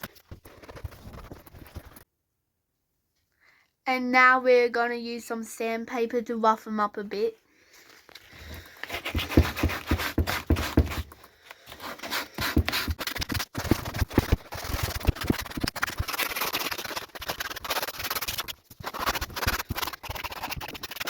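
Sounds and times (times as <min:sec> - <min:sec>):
sandpaper rasping on boot: 0:08.5 - 0:11.1, 0:11.7 - 0:21.0.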